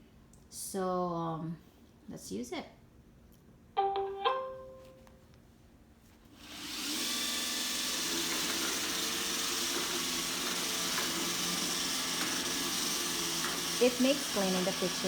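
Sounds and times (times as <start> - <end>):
robot vacuum motor whirring: 6.4 - 15.0.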